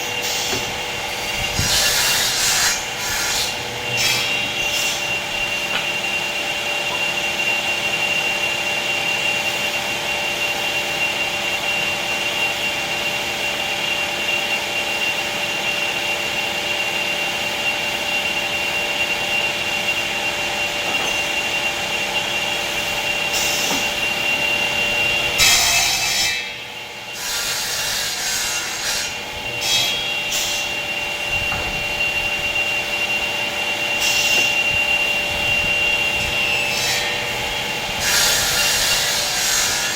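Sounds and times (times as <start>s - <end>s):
woodworking machine whining: 0.0s - 39.9s.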